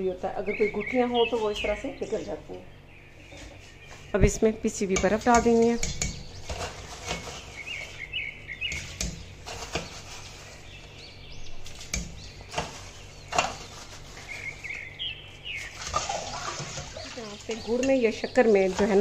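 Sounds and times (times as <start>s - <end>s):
low steady hum: 0.0s - 19.0s
small bird chirping: 0.2s - 19.0s.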